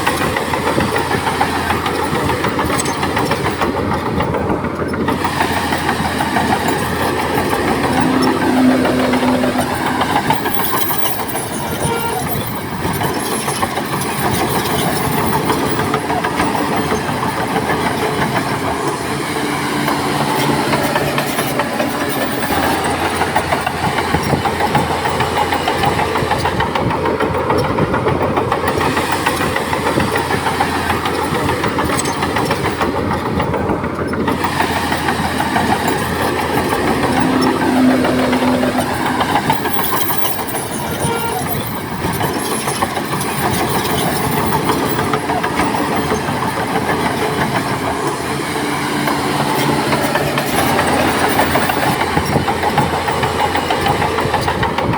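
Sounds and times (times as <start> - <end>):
diesel engine drone: 0.0 - 54.9
mechanical clatter: 0.0 - 54.9.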